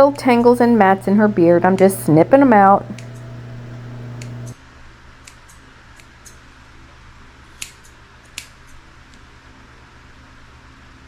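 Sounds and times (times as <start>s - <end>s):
steady low hum: 0.0s - 4.6s.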